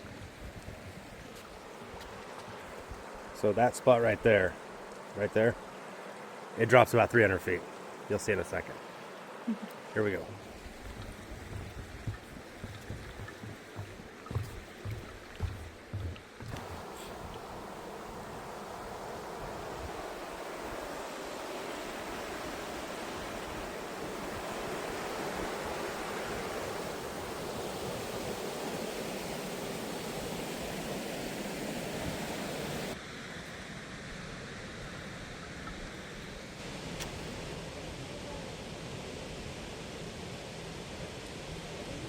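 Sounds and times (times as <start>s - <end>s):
waterfall roaring: 9.9s - 33.0s.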